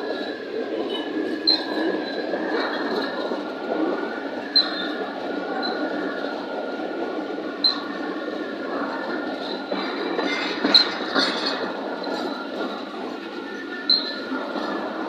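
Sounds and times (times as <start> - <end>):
train wagons rumbling and rattling: 0.0 - 15.0
high wheel squeals: 13.5 - 14.4.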